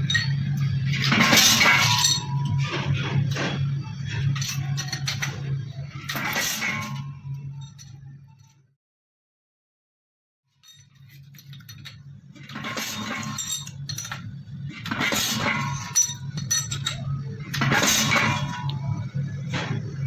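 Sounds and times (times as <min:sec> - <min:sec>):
metal parts clinking: 0:00.0 - 0:03.5, 0:04.2 - 0:08.6, 0:10.6 - 0:19.0
low machine hum: 0:11.3 - 0:20.0.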